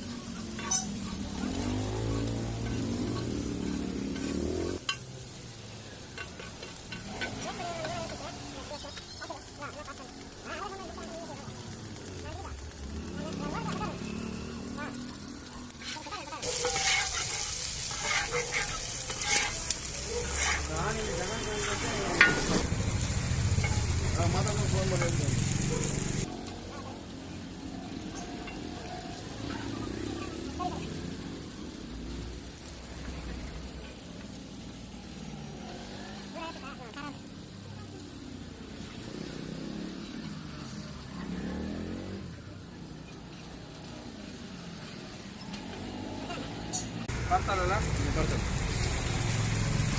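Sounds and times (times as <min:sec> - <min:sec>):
spatula scraping a griddle: 0:00.0 - 0:05.1, 0:05.7 - 0:10.8, 0:13.2 - 0:22.7, 0:23.6 - 0:26.2
food sizzling in hot oil: 0:00.0 - 0:49.9
steady traffic hum: 0:00.0 - 0:49.9
vehicle engine passing: 0:00.1 - 0:49.9.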